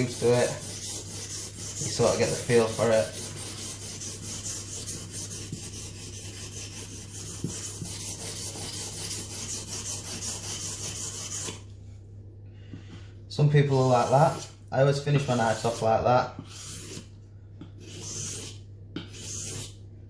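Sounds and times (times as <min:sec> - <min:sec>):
blade scraping on wet whetstone: 0:00.0 - 0:11.6, 0:15.1 - 0:19.8.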